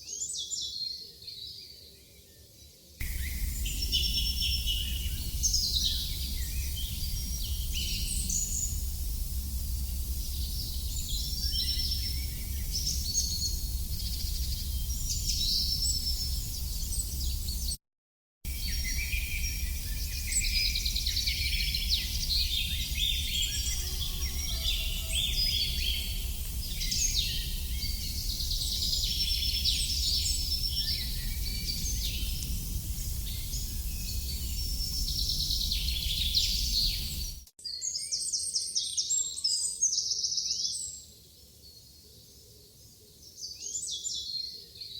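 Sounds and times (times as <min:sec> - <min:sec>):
songbirds chirping: 0:00.0 - 0:17.8, 0:18.5 - 0:44.9
steady low rumble: 0:03.0 - 0:17.7, 0:18.5 - 0:23.7, 0:25.2 - 0:37.4.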